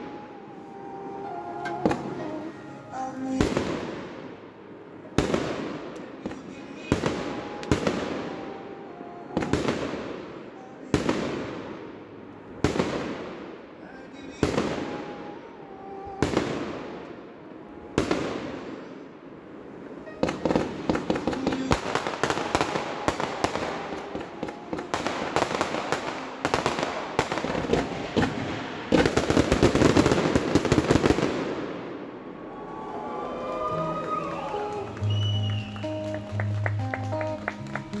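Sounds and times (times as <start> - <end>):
rapid crackling firework bangs: 12.6 - 13.6, 20.2 - 32.0.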